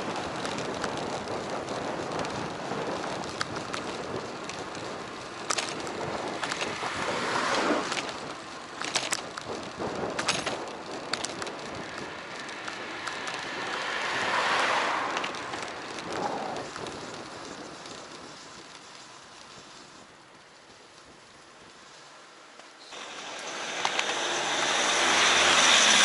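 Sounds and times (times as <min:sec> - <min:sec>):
wind on microphone: 0:00.0 - 0:18.7
bicycle road noise: 0:00.0 - 0:26.0.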